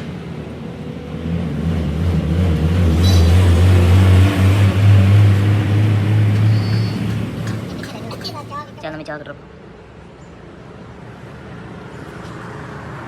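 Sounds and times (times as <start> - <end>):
truck engine droning: 0.0 - 8.8.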